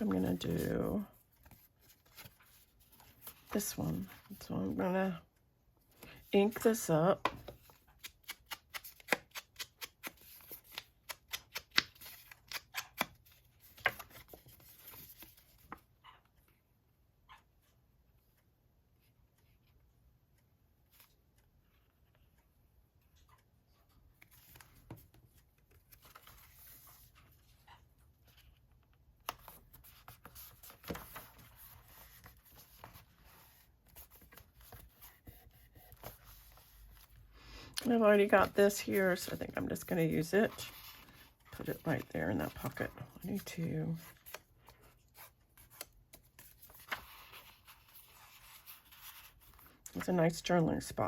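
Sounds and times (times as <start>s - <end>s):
paper taps and rustles: 7.2s - 15.8s, 29.2s - 37.1s.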